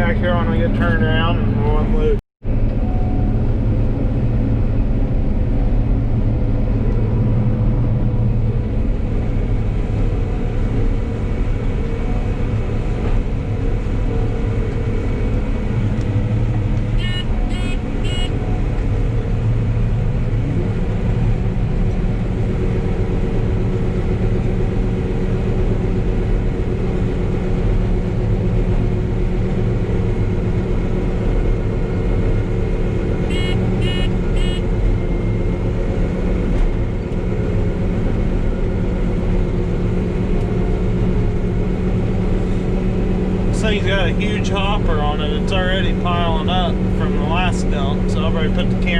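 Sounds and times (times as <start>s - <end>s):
combine engine and threshing drone: 0.0s - 48.9s
short electronic alarm beeps: 17.0s - 18.3s, 33.3s - 34.6s.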